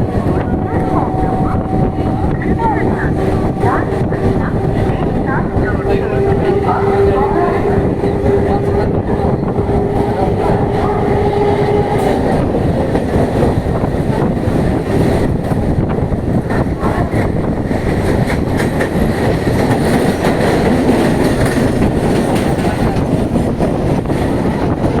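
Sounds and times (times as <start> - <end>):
train wheels rumbling on rail: 0.0 - 25.0
wheels clacking over rail joints: 16.5 - 25.0.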